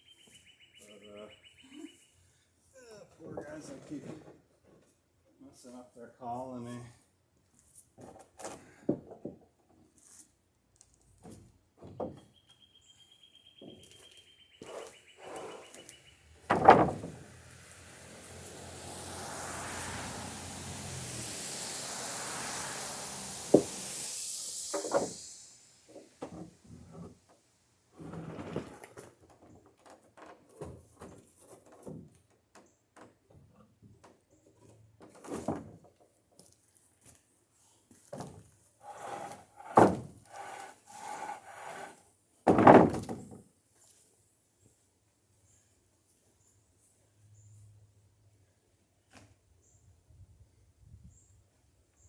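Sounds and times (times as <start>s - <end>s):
wooden planks knocking and scraping: 11.2s - 12.3s, 13.6s - 20.1s, 23.4s - 23.8s, 28.0s - 36.5s, 38.0s - 43.4s
sharp wooden clack: 14.6s - 17.3s, 24.7s - 25.3s
rushing noise of passing vehicle: 15.8s - 26.2s
heavy wooden thump: 16.4s - 17.3s, 42.5s - 43.2s
wooden boards knocking: 16.4s - 17.3s, 39.0s - 41.8s, 42.5s - 43.4s.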